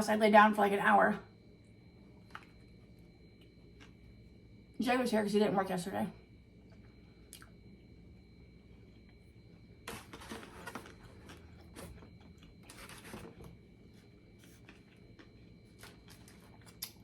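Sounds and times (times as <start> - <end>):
low room hum: 0.0 - 17.0
chewing: 14.5 - 17.0.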